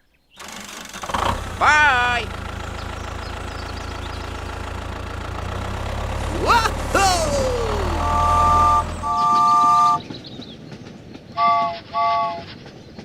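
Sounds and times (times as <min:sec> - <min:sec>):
low engine rumble: 0:00.4 - 0:10.2
vehicle horn honking: 0:06.4 - 0:10.0.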